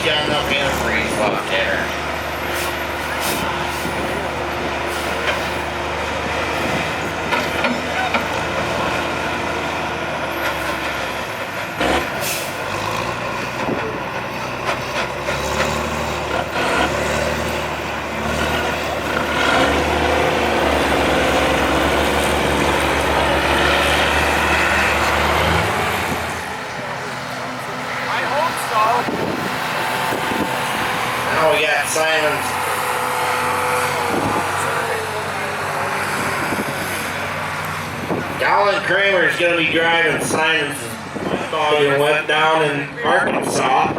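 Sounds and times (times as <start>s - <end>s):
truck engine running: 0.0s - 43.9s
air brake hiss: 2.6s - 3.5s.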